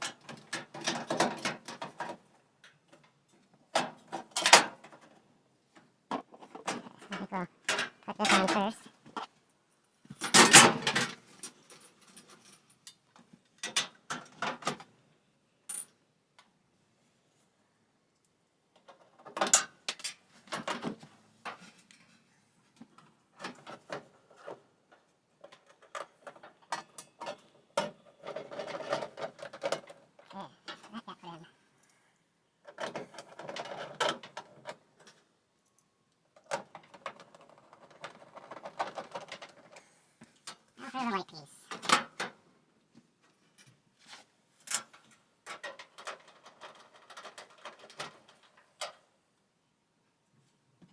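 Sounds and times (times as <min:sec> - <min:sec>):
dryer parts clicking and rattling: 0:00.0 - 0:05.2, 0:25.4 - 0:30.9, 0:44.7 - 0:49.0.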